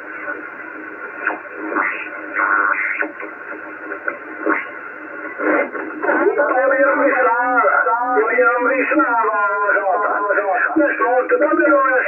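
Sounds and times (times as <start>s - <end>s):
radio receiver hiss: 0.0s - 12.0s
garbled radio voice: 1.6s - 3.2s, 5.5s - 12.0s.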